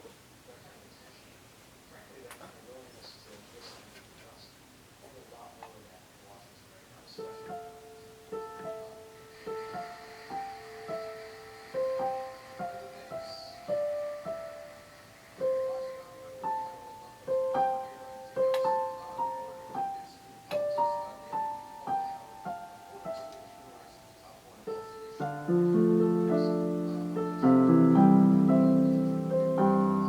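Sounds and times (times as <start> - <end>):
low piano chords: 7.1 - 30.0
piano playing slow melody: 7.2 - 30.0.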